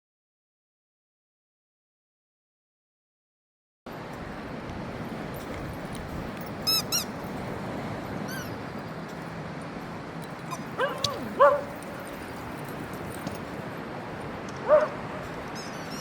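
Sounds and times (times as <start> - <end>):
dogs yelping and whining: 6.7 - 7.2, 10.4 - 12.2, 14.6 - 15.0.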